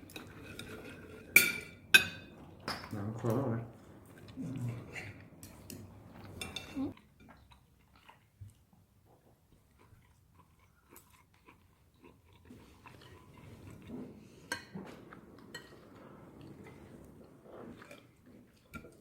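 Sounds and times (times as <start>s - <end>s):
person chewing: 4.0s - 8.7s, 9.4s - 14.8s, 16.4s - 19.0s.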